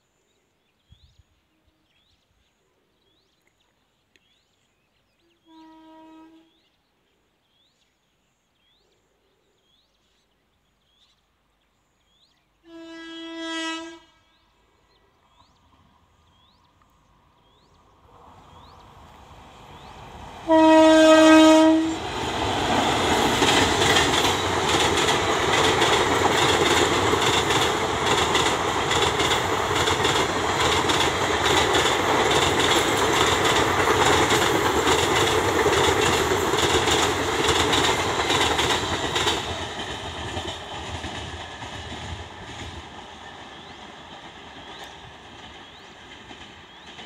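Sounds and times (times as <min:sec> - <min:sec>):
locomotive horn blast: 0:05.5 - 0:06.5, 0:12.7 - 0:14.3, 0:20.4 - 0:22.0
train wheels clickety-clack: 0:22.0 - 0:47.0.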